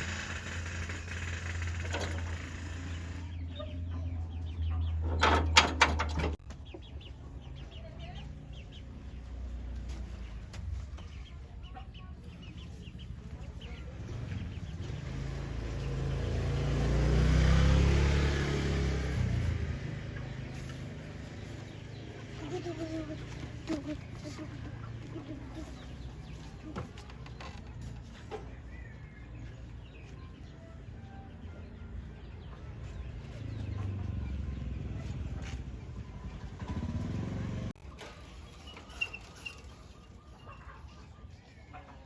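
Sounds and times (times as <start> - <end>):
chickens clucking: 20.0 - 30.5, 37.8 - 42.0.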